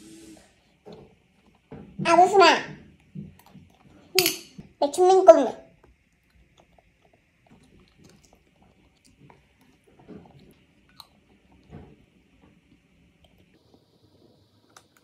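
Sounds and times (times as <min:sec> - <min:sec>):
toddler chewing: 0:05.8 - 0:11.7.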